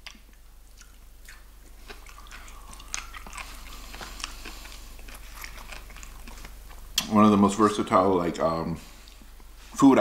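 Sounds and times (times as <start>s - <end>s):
person chewing crunchy food: 0.0s - 7.1s.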